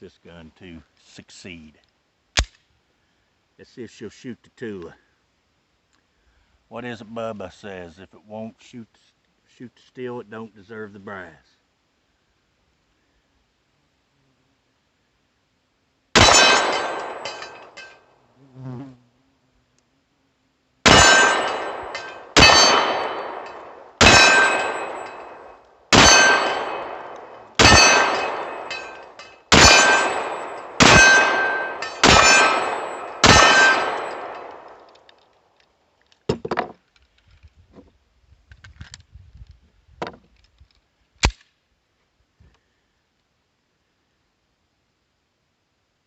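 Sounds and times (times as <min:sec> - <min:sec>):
gun handling clicks: 0:01.8 - 0:02.7, 0:26.8 - 0:27.6, 0:34.0 - 0:37.6, 0:40.3 - 0:41.6
pistol shots with ringing tail: 0:16.2 - 0:18.0, 0:20.8 - 0:34.9.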